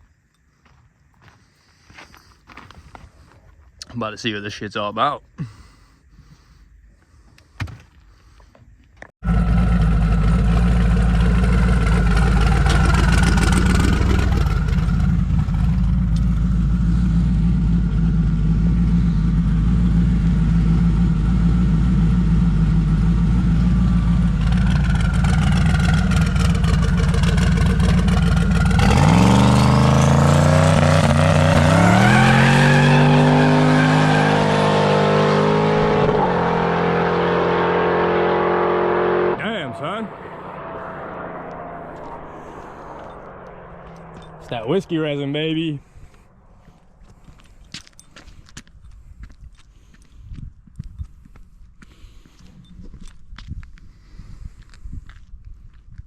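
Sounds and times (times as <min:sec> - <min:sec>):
drag car engine revving: 0:09.2 - 0:45.4.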